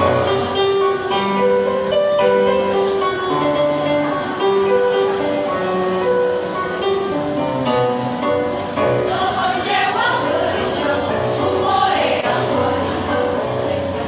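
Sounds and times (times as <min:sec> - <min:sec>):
choir singing: 0:08.4 - 0:14.0.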